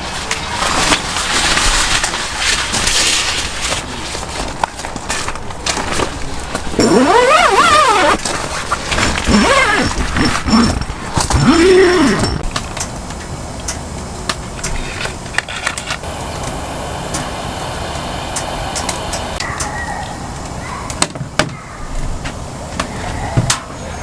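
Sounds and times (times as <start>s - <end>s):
heavy rain hiss: 16.0s - 19.4s.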